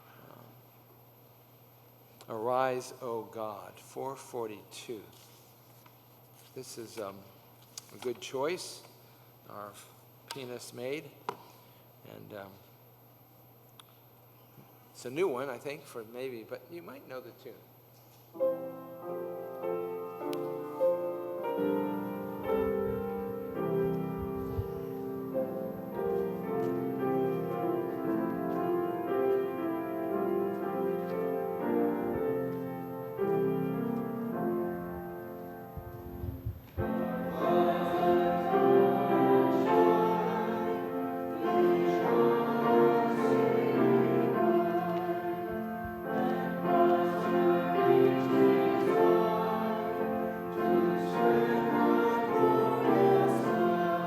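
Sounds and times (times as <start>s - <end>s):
piano playing hymn: 18.3s - 54.0s
congregation singing hymn: 18.4s - 36.0s, 36.8s - 54.0s.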